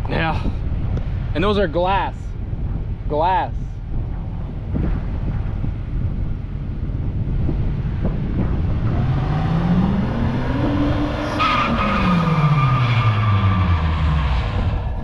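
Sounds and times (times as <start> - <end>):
car engine revving: 7.8 - 15.0
tires squealing: 8.9 - 15.0.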